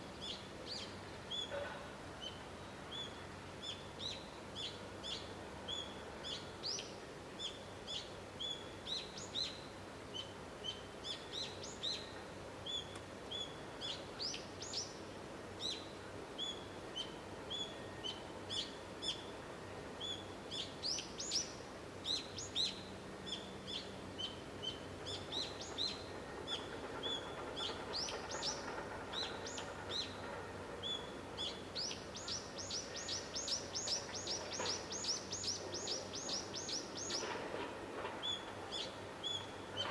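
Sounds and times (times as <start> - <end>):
faint outdoor background noise: 0.0 - 39.9
small birds chirping: 30.8 - 37.3.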